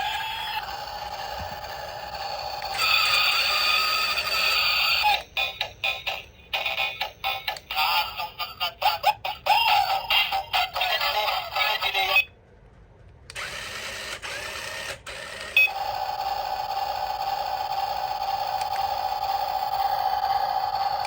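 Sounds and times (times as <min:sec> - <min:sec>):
small electric motor whirring: 0:00.0 - 0:05.7, 0:13.3 - 0:21.0
toy electronic tune: 0:00.0 - 0:12.2, 0:15.2 - 0:16.0.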